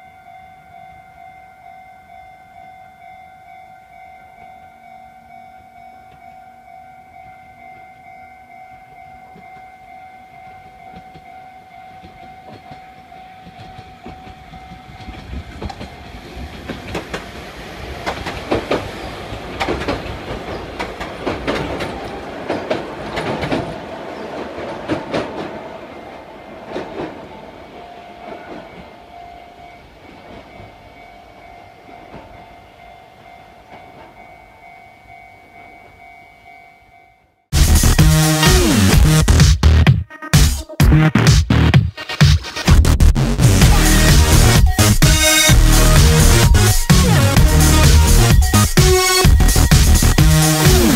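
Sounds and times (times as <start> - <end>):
level-crossing warning bell: 0.0 - 38.4, 43.6 - 50.9
train wheels clattering on bridge: 10.5 - 27.5.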